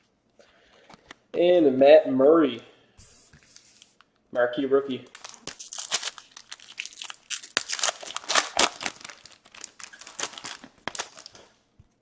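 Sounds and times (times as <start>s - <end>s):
plastic wrappers crinkling and tearing: 5.1s - 11.6s.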